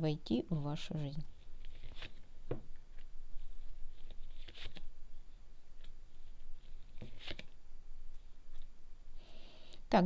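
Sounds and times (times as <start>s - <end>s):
cards laid on a table: 5.8s - 8.7s.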